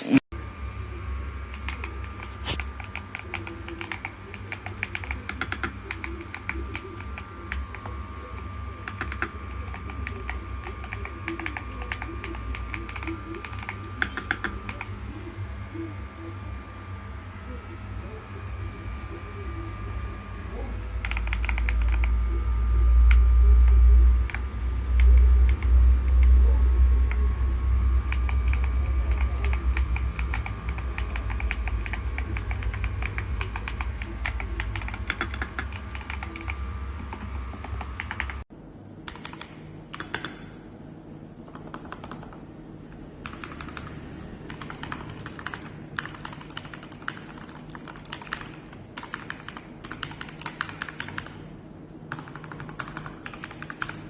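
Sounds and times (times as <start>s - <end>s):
typing on mechanical keyboard: 2.8s - 7.9s, 8.8s - 14.9s, 21.0s - 22.1s, 28.1s - 38.4s, 39.1s - 40.4s, 41.5s - 42.4s, 43.2s - 51.4s, 52.1s - 54.0s.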